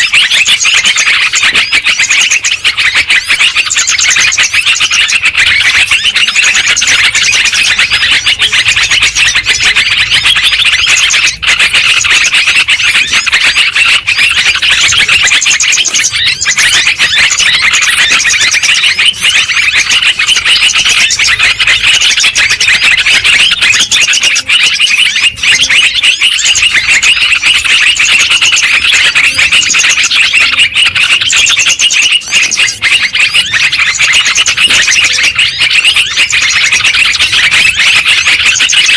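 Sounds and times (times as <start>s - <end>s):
birds chattering: 0.0s - 38.9s.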